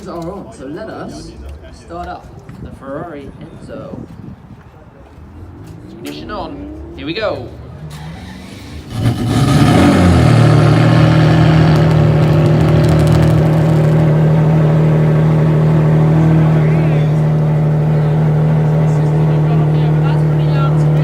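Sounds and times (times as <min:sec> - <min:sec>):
car engine idling: 0:07.0 - 0:21.0.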